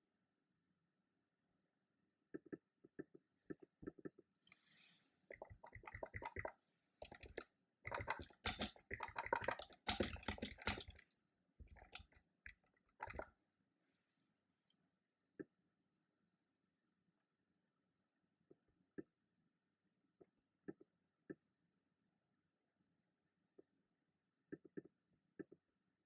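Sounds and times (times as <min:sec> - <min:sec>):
keyboard typing clicks: 0:05.4 - 0:11.0.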